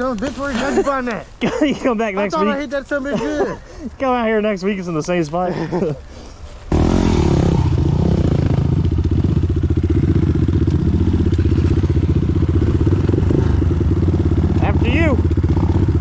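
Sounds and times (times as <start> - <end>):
dirt bike engine idling: 6.7 - 16.0.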